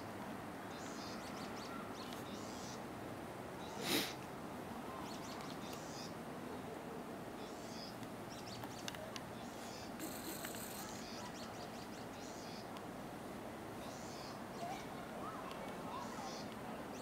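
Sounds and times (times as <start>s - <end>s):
background noise: 0.0s - 17.0s
small birds chirping: 0.7s - 2.9s, 4.9s - 6.7s, 7.4s - 12.8s, 13.8s - 17.0s.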